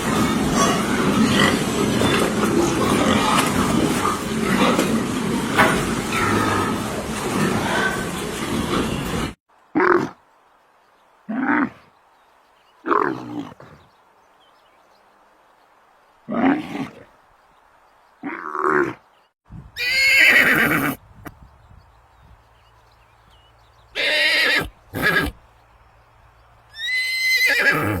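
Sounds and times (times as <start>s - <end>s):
horses neighing: 0.0s - 10.1s, 19.8s - 21.0s, 24.0s - 25.4s, 26.7s - 28.0s.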